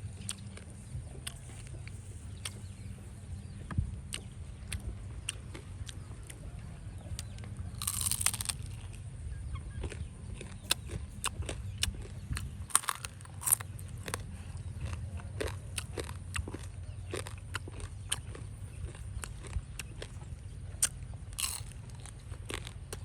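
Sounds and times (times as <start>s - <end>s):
chewing chicken feet: 0.0s - 23.0s
crunching: 4.1s - 9.0s, 9.7s - 23.0s.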